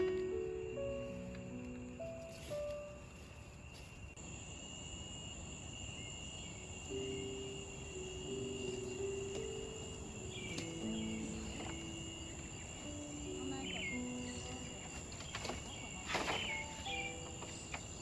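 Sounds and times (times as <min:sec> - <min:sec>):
soft music of low held notes: 0:00.0 - 0:04.2, 0:06.0 - 0:18.0
insects droning: 0:00.0 - 0:18.0.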